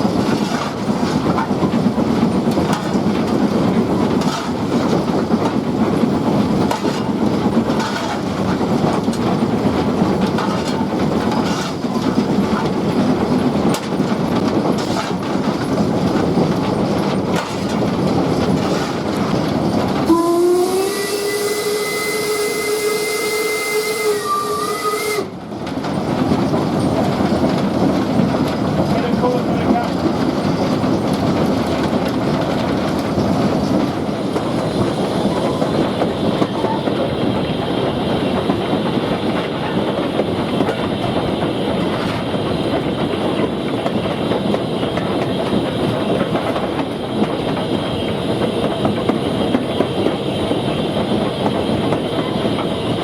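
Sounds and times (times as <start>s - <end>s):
steam train rail clatter: 0.0s - 53.0s
steam locomotive whistle: 20.1s - 25.4s.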